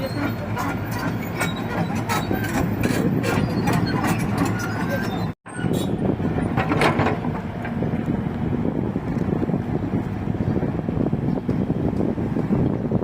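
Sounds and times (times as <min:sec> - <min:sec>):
metal clanks and knocks: 0:00.0 - 0:05.4, 0:06.2 - 0:07.8
excavator diesel engine running: 0:00.0 - 0:12.4.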